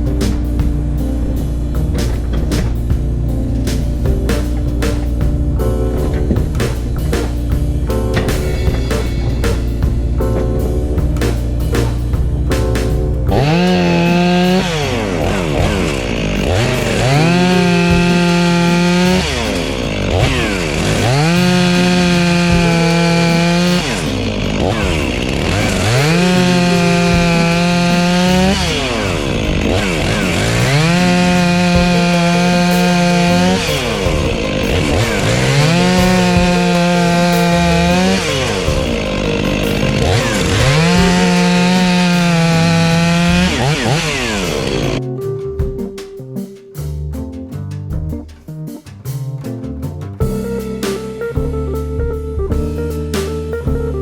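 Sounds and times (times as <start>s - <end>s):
background music: 0.0s - 54.0s
chainsaw cutting wood: 13.4s - 45.0s.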